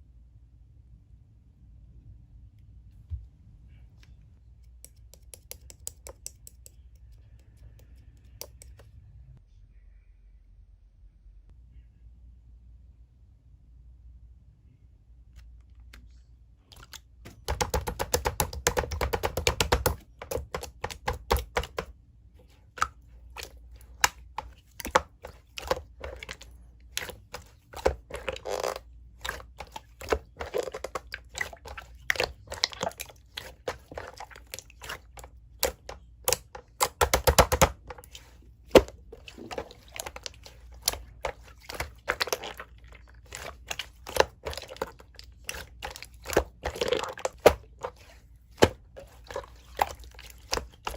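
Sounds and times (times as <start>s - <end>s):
slime squished by hand: 16.7s - 50.9s.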